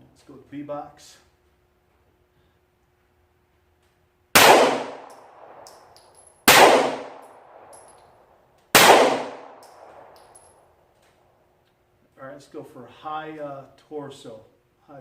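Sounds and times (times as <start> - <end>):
pistol shots echoing: 4.4 - 8.0, 8.7 - 10.5.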